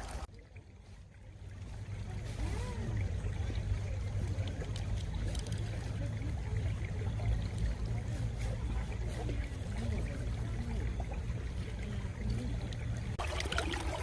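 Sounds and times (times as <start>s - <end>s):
stream water gurgling: 0.0s - 14.0s
water bubbling: 0.0s - 14.0s.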